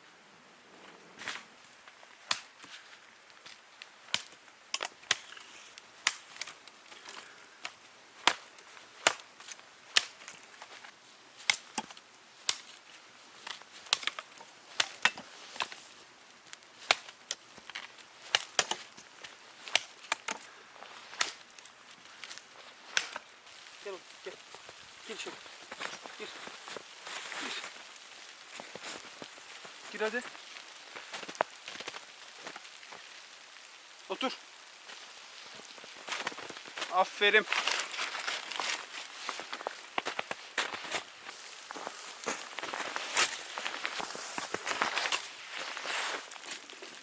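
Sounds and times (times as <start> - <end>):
wooden cracks and snaps: 4.1 - 10.8, 11.4 - 15.9, 16.5 - 23.3.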